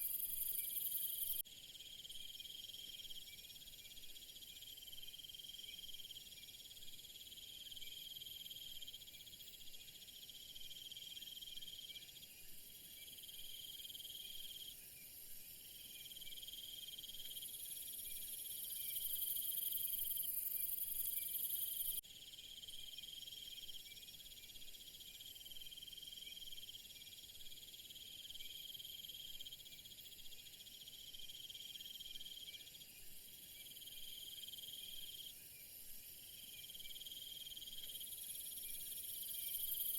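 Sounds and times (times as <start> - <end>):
insect chorus trilling: 0.0 - 9.1, 13.1 - 14.7, 15.9 - 29.8, 30.6 - 32.8, 33.5 - 39.9.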